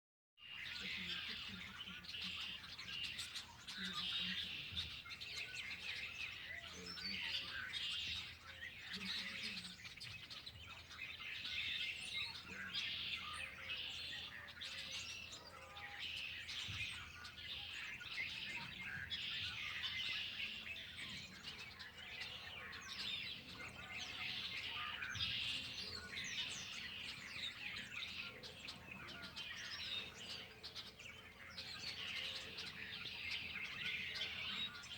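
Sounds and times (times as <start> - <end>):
chorus of songbirds singing: 0.4 - 34.9.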